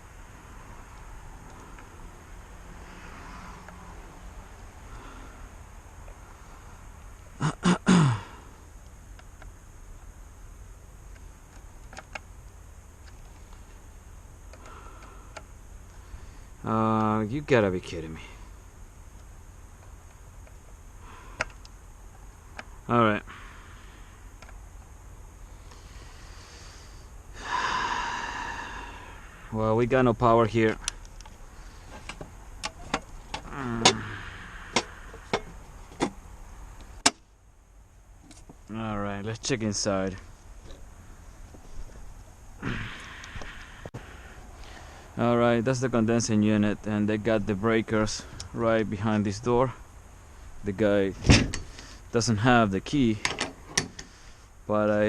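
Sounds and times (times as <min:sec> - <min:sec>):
faint hiss: 0:00.0 - 0:55.0
sharp clicks and knocks: 0:34.7 - 0:36.2, 0:53.2 - 0:54.1.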